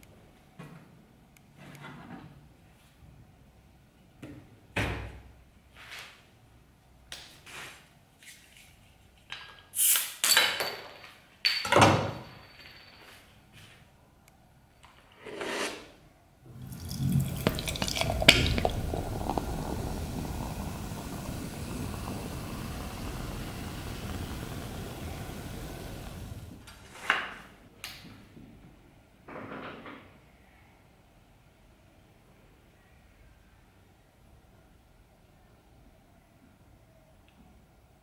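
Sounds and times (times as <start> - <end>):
glass and metal containers clinking: 16.5 - 19.4
water running: 16.5 - 26.6.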